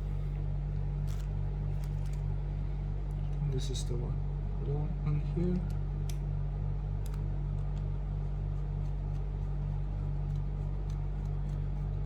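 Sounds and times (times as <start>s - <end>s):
steady low hum: 0.0s - 12.0s
faint light clicks: 5.6s - 6.3s.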